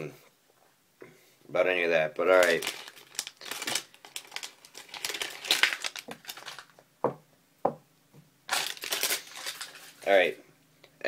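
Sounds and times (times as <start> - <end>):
packaging crinkling and rustling: 2.1 - 6.8, 8.5 - 10.4.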